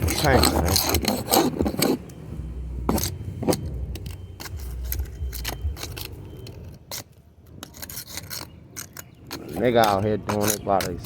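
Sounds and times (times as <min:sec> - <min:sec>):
hand scraper scraping paint: 0:00.0 - 0:02.1, 0:04.4 - 0:11.0
low rumble: 0:02.0 - 0:07.6.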